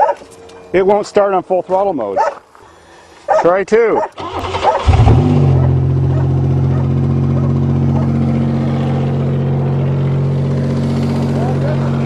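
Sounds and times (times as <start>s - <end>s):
car engine running steadily: 4.8s - 12.0s.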